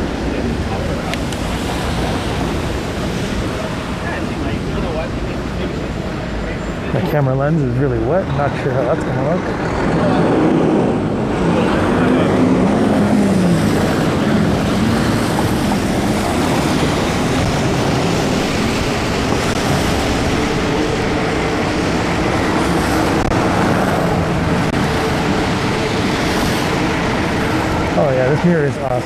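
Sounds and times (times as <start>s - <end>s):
traffic: 0.0s - 29.0s
tyres on wet pavement: 0.0s - 29.0s
wind rushing on microphone: 8.2s - 29.0s.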